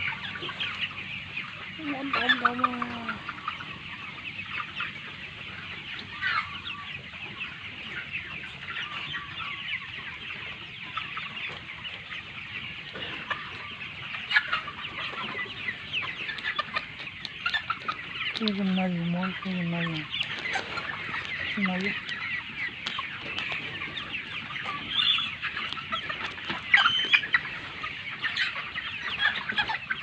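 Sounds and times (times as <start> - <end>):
flock of chickens clucking: 0.0 - 30.0
louder chicken calls: 19.9 - 30.0.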